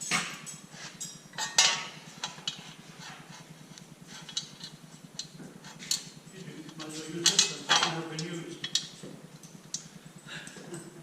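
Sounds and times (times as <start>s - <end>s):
steady low hum: 0.0s - 11.0s
small metal tools clinking: 0.5s - 2.6s, 4.3s - 11.0s.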